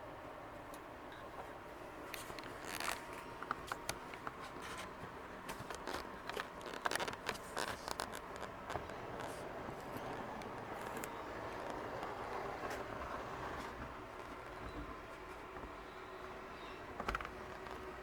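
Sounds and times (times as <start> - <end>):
model train wheels clicking on rails: 8.4 - 14.5.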